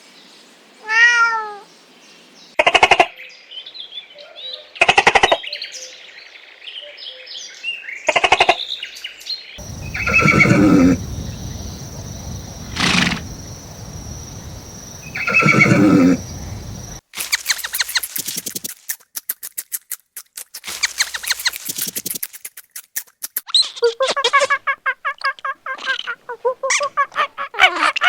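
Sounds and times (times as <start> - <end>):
farm animals calling: 9.6 - 17.0
high-pitched hiss: 9.6 - 18.7
small bird chirps: 9.6 - 18.7, 20.7 - 22.2.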